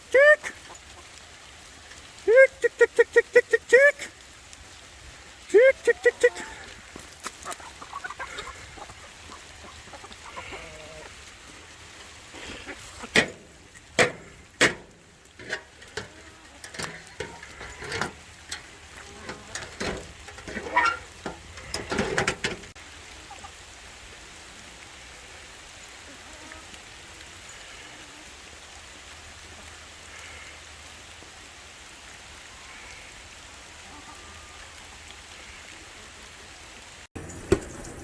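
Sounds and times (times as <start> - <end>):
rain pattering: 0.0 - 38.0
chickens clucking: 0.2 - 1.2, 5.5 - 23.6.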